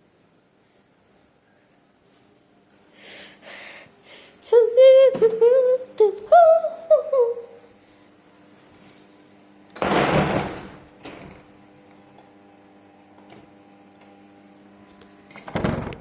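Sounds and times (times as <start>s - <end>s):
breathy sounds: 2.9s - 4.4s.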